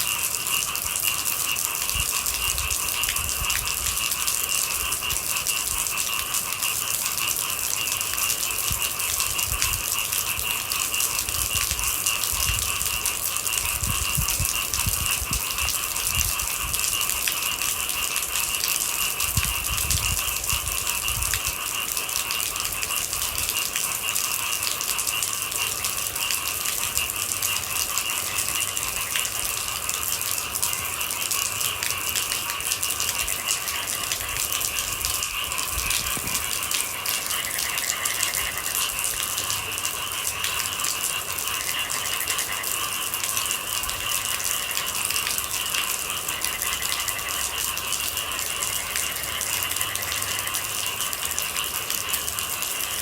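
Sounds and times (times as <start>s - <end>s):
dense rain patter: 0.0s - 53.0s.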